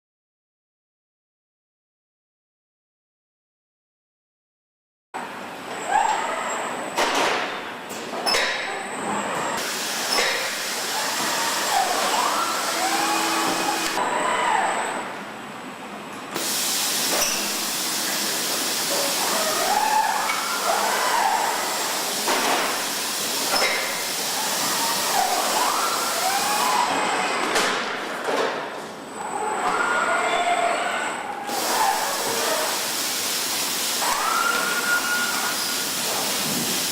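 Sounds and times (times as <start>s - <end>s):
machinery hissing: 9.6s - 14.0s, 16.4s - 26.9s, 31.5s - 36.9s.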